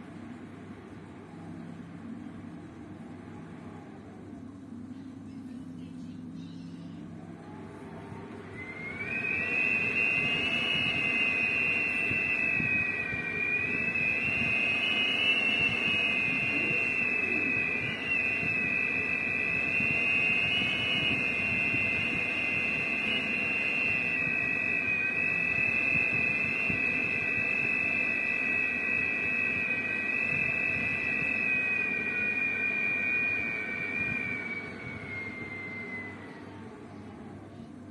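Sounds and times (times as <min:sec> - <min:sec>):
wind whistling: 0:08.0 - 0:36.8.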